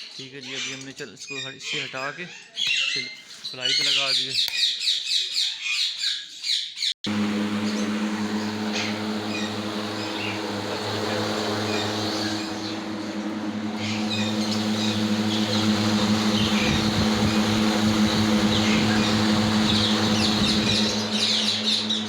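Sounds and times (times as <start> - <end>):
bird chirps: 0.0 - 6.9
electric fans humming: 7.0 - 22.0.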